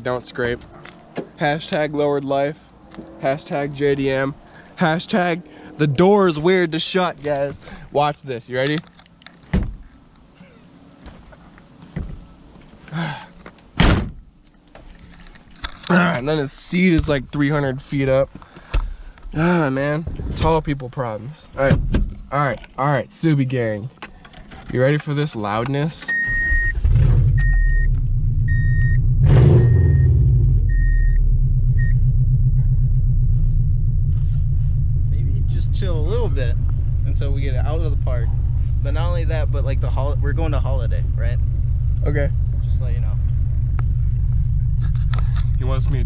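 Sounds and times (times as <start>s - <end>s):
car door slamming: 9.4s - 9.8s, 13.8s - 14.2s
dashboard warning chime beeping: 26.1s - 26.8s, 27.4s - 27.9s, 28.5s - 29.0s, 30.7s - 31.2s
car engine idling: 27.3s - 46.0s.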